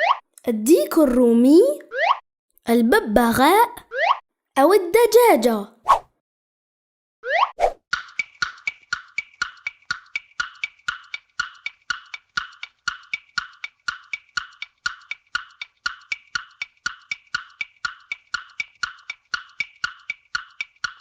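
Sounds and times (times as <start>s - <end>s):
countdown timer tick-tock: 8.0s - 21.0s.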